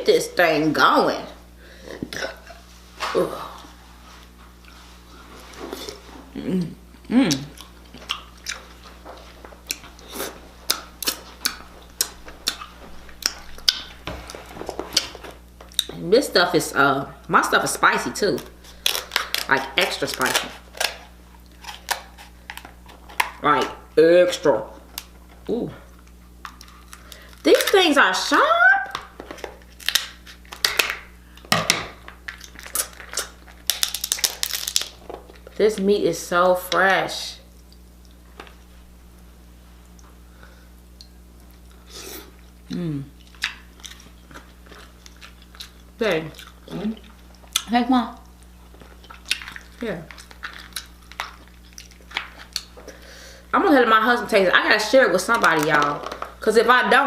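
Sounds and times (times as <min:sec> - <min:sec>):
crab shell cracking: 0:18.6 - 0:23.4, 0:28.9 - 0:35.5, 0:48.4 - 0:52.8
crab shell cracking by hand: 0:28.9 - 0:35.5.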